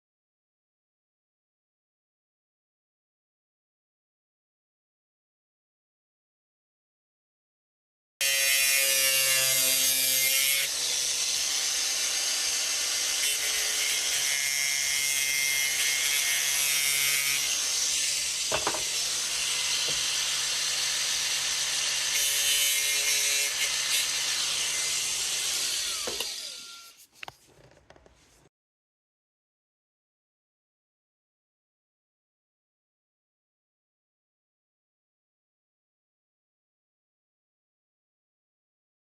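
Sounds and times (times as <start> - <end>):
power saw cutting vinyl flooring: 8.2 - 27.0.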